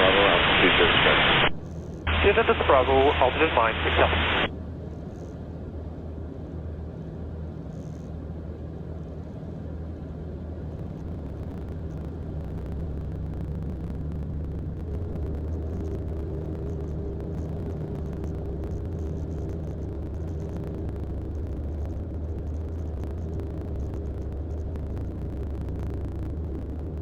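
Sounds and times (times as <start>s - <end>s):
faint higher hum: 0.0s - 4.6s
aircraft engine and propeller drone: 2.1s - 4.5s.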